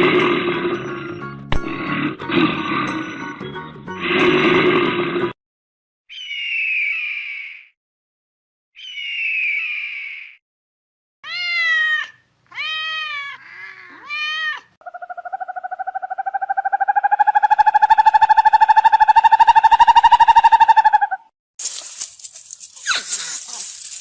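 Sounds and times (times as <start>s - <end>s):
cat meowing: 11.2s - 14.8s.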